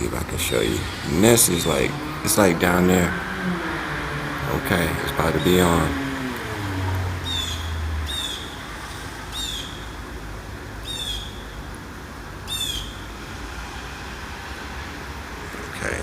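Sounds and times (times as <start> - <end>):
bird calling: 5.0 - 10.0, 10.8 - 11.7, 12.4 - 13.1.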